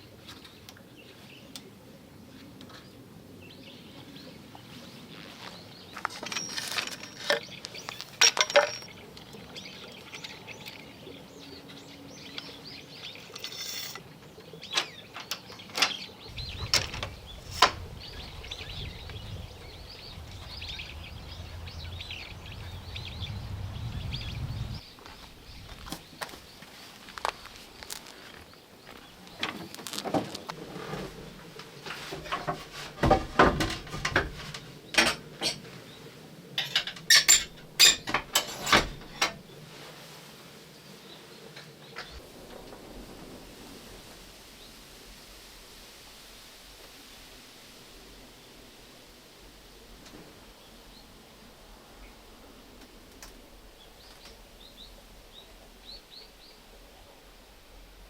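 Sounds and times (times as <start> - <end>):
clinks of utensils being handled: 6.2 - 9.0, 13.2 - 14.0, 36.6 - 39.4
steady hiss: 16.2 - 58.0
faint bird chirps: 16.3 - 26.3.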